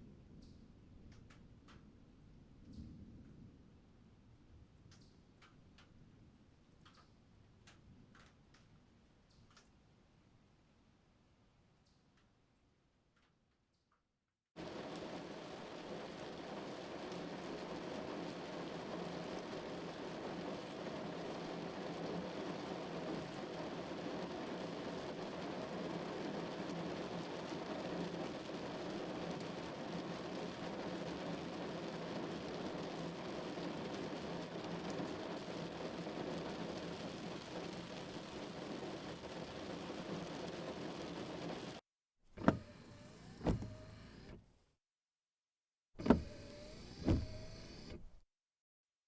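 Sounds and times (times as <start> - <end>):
rain drumming on car roof: 14.6 - 41.8, 46.0 - 47.8.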